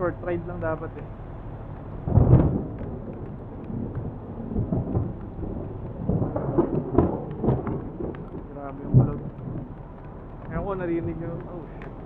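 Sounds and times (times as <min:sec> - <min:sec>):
thunder crack: 0:02.0 - 0:09.7
rumbling thunder: 0:02.0 - 0:09.8.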